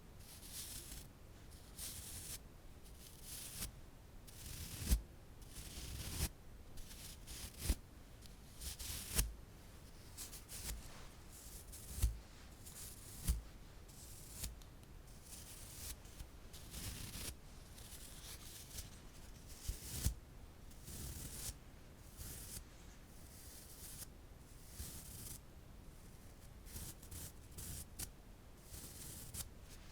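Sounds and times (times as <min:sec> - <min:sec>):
soft crinkly rustling: 0:08.1 - 0:19.8, 0:22.0 - 0:23.8, 0:28.8 - 0:29.9.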